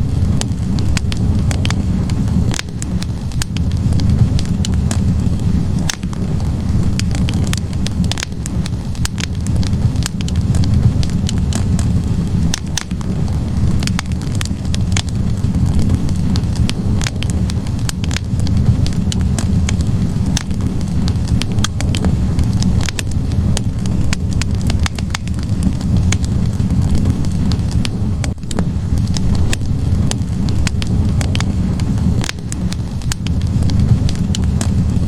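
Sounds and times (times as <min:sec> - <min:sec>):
low rumble of flames: 0:00.0 - 0:35.0
wood fire crackling and popping: 0:00.0 - 0:35.0.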